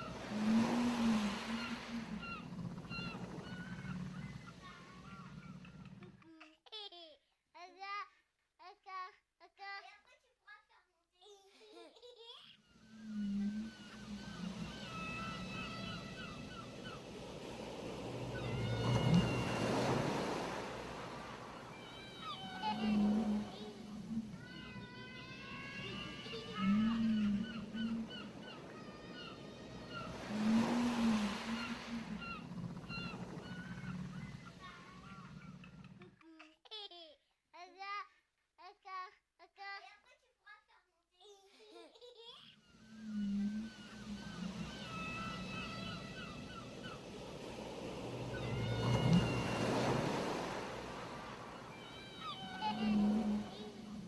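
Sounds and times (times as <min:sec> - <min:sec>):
surf washing onto beach: 0:00.0 - 0:05.2, 0:13.1 - 0:35.4, 0:43.1 - 0:54.0
faint high calls: 0:00.0 - 0:05.7, 0:12.7 - 0:35.9, 0:42.6 - 0:54.0
birds chirping: 0:00.0 - 0:06.0, 0:12.8 - 0:36.0, 0:42.6 - 0:54.0.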